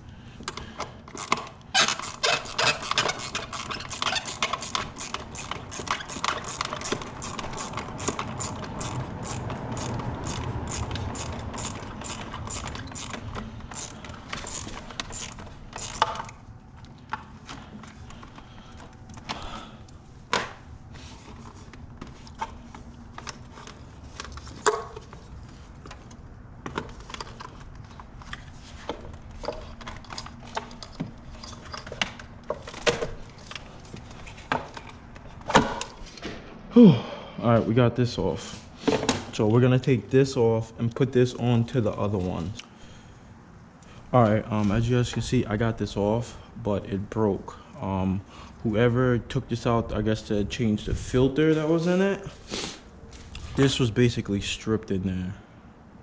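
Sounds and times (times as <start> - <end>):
parts knocking and clunking: 0.4 - 36.7, 38.8 - 39.4
ratchet tool clicking: 1.1 - 16.4.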